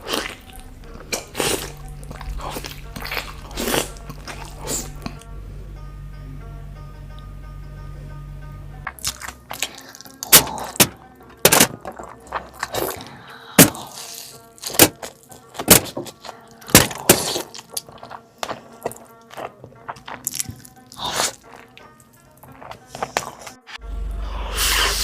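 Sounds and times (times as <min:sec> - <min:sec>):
crunching bites and chewing: 0:00.0 - 0:05.2, 0:08.9 - 0:23.8
faint background music: 0:00.0 - 0:25.0.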